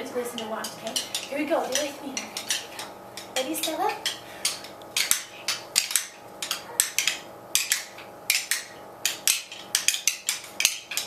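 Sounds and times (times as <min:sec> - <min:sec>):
children tapping rhythm sticks: 0:00.0 - 0:11.0.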